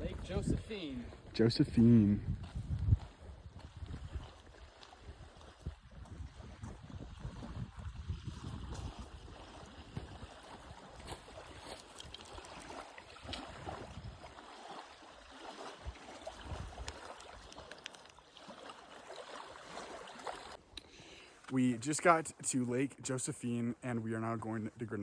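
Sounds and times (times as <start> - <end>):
wind gusting on microphone: 0.0 - 11.6, 13.2 - 14.3.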